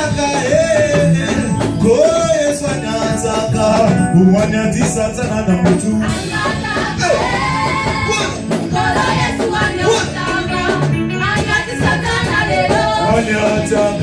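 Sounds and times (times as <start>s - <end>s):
live band playing worship song: 0.0s - 14.0s
choir singing: 6.0s - 14.0s.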